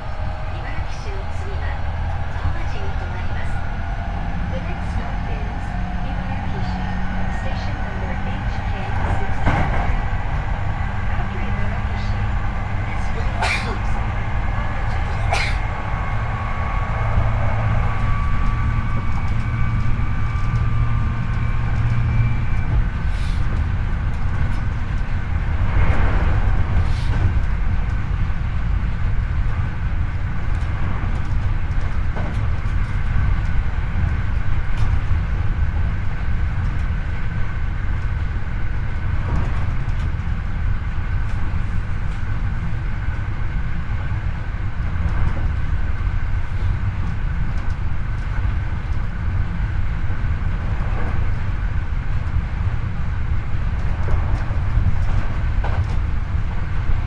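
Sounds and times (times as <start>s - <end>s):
traction motor whine: 0.0s - 26.1s
train wheels rumbling on rails: 0.0s - 57.0s.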